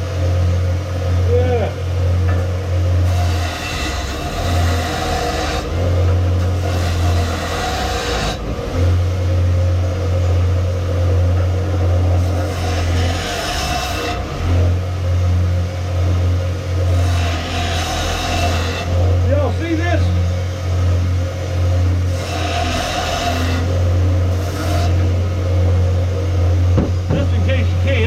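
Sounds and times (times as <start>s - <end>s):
steel grinding on sander: 2.9s - 14.9s, 16.0s - 28.0s.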